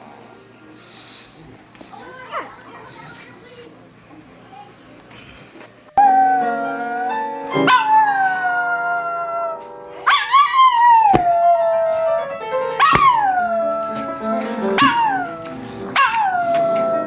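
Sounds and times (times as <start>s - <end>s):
background music with piano: 6.0s - 17.0s
dog howling: 6.0s - 17.0s.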